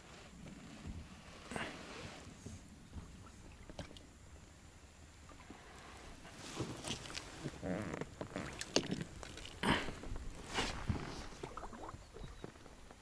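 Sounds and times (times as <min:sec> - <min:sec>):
oars splashing: 0:05.4 - 0:13.0.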